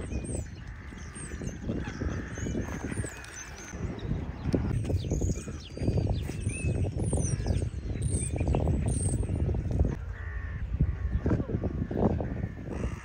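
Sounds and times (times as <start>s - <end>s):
harsh cawing calls: 10.0s - 13.0s.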